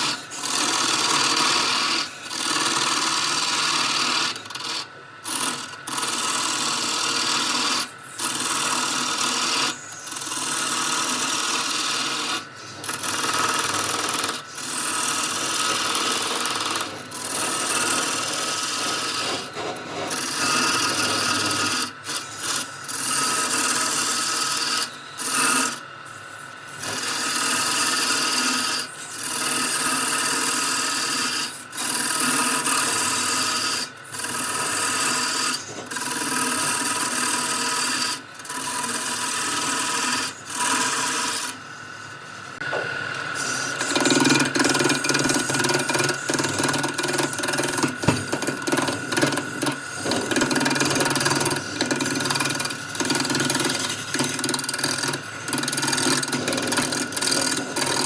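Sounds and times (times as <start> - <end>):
tool rasping into wood: 0.0 - 25.8, 26.8 - 41.6, 43.4 - 58.0
wood lathe turning: 0.0 - 58.0.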